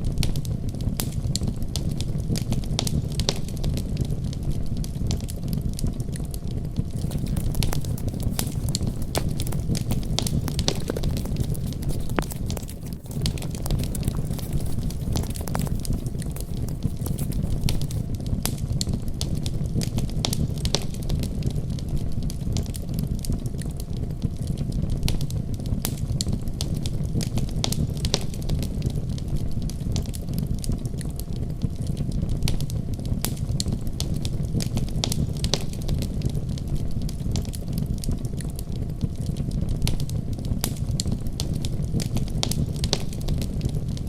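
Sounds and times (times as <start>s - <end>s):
wood fire crackling and popping: 7.0s - 18.1s.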